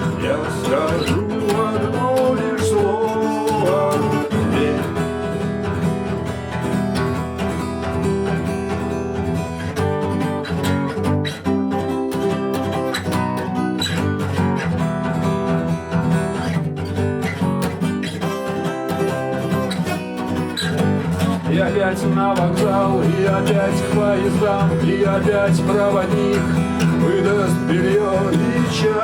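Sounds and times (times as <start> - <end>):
guitar strumming: 0.0 - 29.0.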